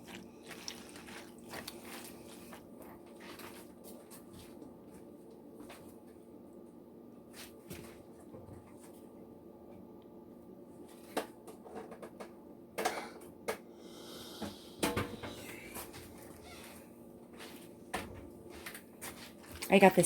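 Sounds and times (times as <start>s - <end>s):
scraping and stirring: 0.0s - 4.5s.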